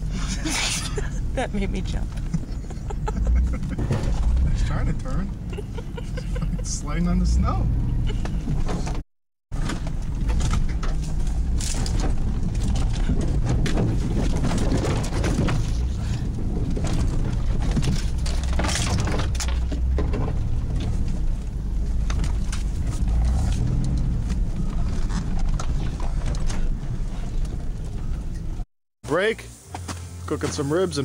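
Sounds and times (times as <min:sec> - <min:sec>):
truck engine rumbling: 0:00.0 - 0:31.0
truck knocks and rattles: 0:02.0 - 0:05.6, 0:07.8 - 0:28.6.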